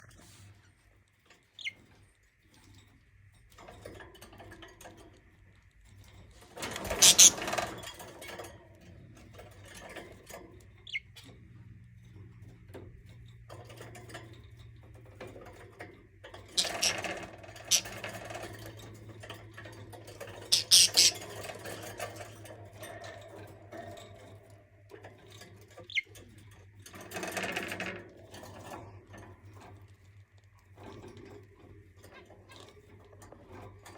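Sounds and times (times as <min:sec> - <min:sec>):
scratching and rustling: 0:06.0 - 0:08.1, 0:16.6 - 0:18.4, 0:20.2 - 0:21.7
budgie chirps: 0:06.9 - 0:07.4, 0:16.6 - 0:18.0, 0:20.5 - 0:21.2.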